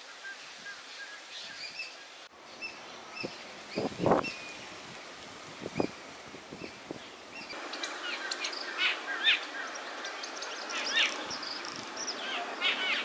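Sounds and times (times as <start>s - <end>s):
outdoor hiss: 0.0s - 13.0s
small birds chirping: 0.1s - 4.8s, 5.7s - 13.0s.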